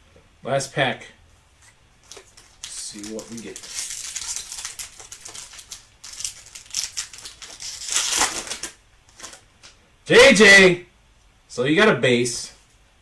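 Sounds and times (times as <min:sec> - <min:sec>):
foil wrapper tearing and crinkling: 0:02.0 - 0:09.4.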